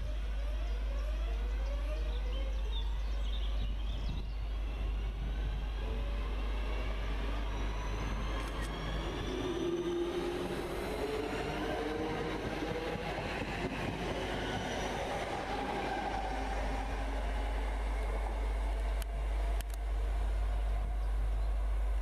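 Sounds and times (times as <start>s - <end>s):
train motor whine: 0.0s - 22.0s
train passing: 0.0s - 22.0s.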